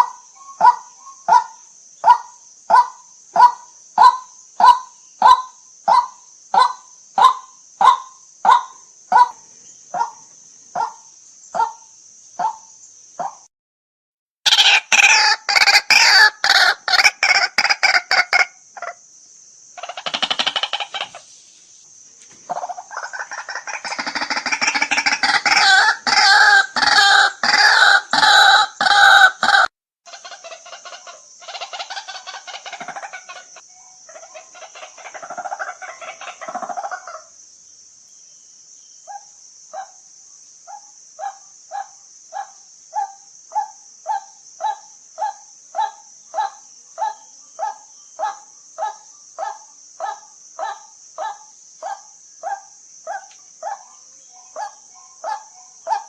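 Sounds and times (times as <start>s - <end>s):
waterhen calling: 14.5s - 19.0s, 19.8s - 21.3s, 22.5s - 37.3s
steady high hiss: 16.9s - 28.1s, 30.2s - 55.9s.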